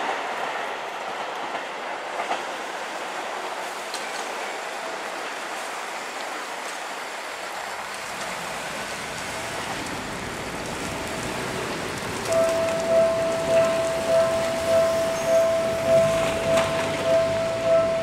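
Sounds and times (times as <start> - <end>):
electric train hiss and rumble: 0.8 - 18.0
level crossing warning bell: 12.2 - 18.0.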